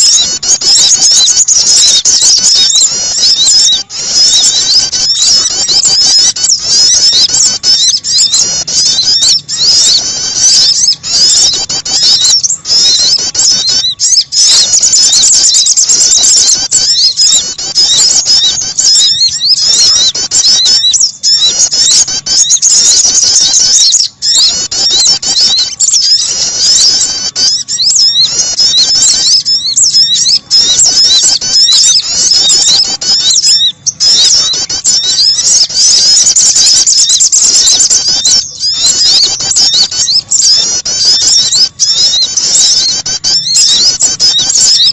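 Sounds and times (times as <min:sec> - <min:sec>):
high-pitched bird chirping: 0:00.0 - 0:44.9
prinia calls: 0:00.0 - 0:44.9.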